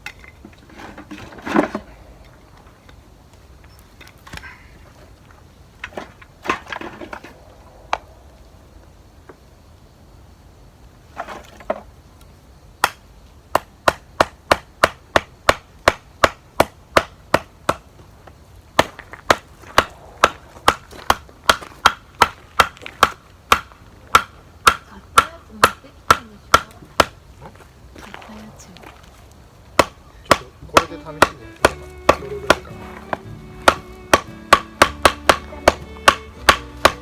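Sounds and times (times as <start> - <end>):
axe chopping firewood: 12.8 - 17.9, 18.8 - 27.2, 29.7 - 37.0.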